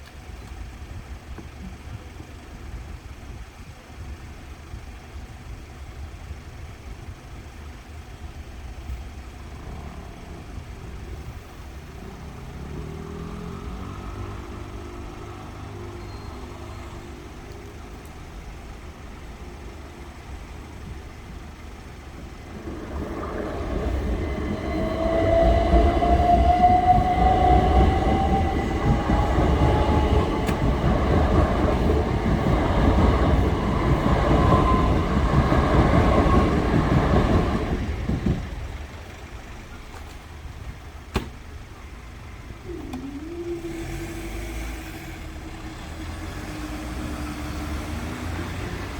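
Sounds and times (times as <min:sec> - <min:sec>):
electric train passing: 0:09.4 - 0:39.9, 0:42.0 - 0:48.9
rising motor whine: 0:22.0 - 0:38.6, 0:42.6 - 0:48.9.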